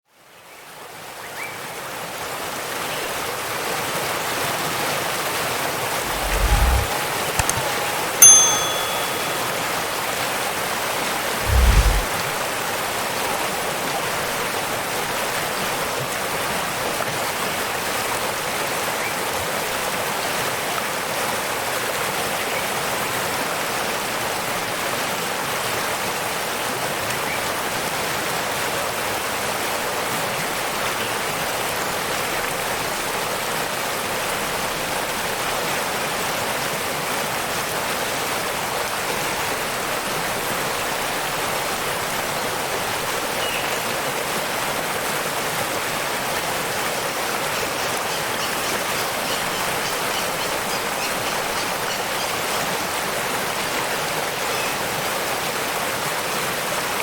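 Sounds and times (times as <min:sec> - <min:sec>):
bright ringing ding: 0:06.1 - 0:09.9, 0:11.4 - 0:12.1
waterfall rushing water: 0:11.4 - 0:57.0.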